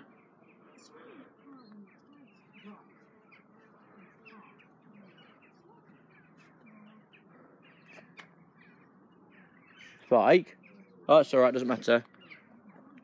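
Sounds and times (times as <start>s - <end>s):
distant bird calls: 0.0s - 13.0s.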